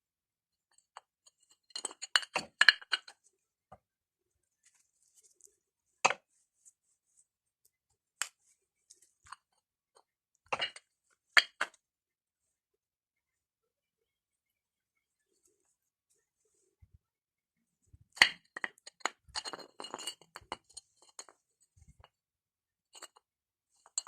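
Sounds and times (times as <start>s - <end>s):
stones clicking and clinking: 0.8s - 3.2s, 8.2s - 11.8s, 18.1s - 22.1s, 23.0s - 23.2s, 23.8s - 24.0s.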